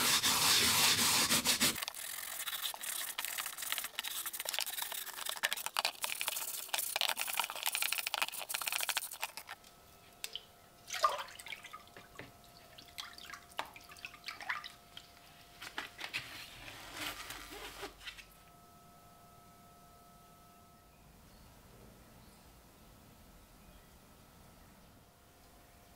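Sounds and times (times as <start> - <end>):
brisk scrubbing: 0.0 - 9.6
water dripping: 10.2 - 15.2.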